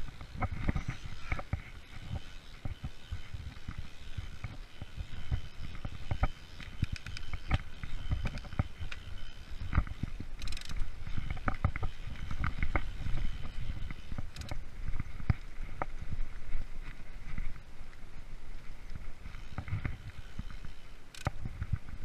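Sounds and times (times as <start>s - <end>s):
bike knocking and rattling: 0.0s - 22.0s
bike tyre rumble on trail: 0.0s - 22.0s.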